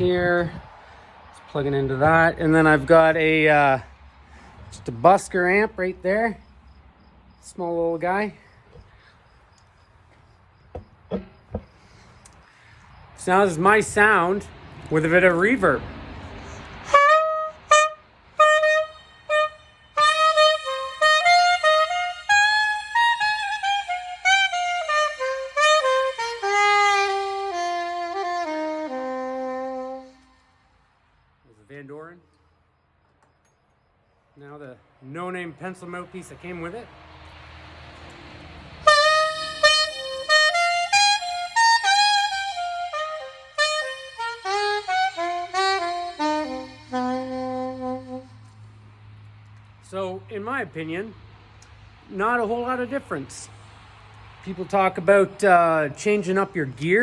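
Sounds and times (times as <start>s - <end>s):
soprano saxophone playing: 16.8s - 30.8s, 38.8s - 48.7s.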